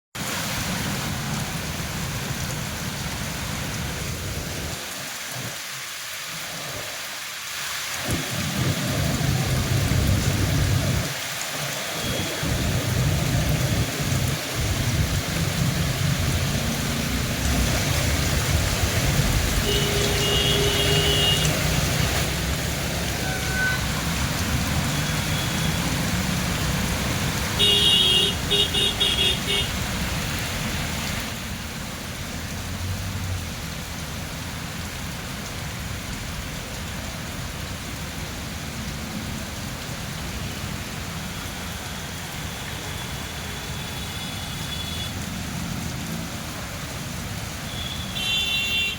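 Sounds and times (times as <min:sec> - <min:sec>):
heavy rain: 0:00.2 - 0:48.9
road traffic: 0:00.2 - 0:48.9
vehicle horn beeping: 0:19.6 - 0:21.7, 0:23.2 - 0:24.0, 0:27.6 - 0:29.7, 0:47.7 - 0:48.9.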